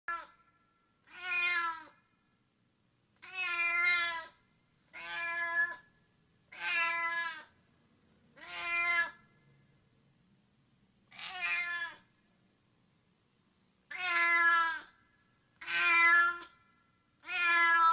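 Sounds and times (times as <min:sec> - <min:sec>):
cat meowing: 0:00.1 - 0:00.4, 0:01.0 - 0:02.0, 0:03.2 - 0:05.9, 0:06.5 - 0:07.5, 0:08.4 - 0:09.2, 0:11.1 - 0:12.1, 0:13.9 - 0:15.0, 0:15.6 - 0:16.6, 0:17.2 - 0:17.9.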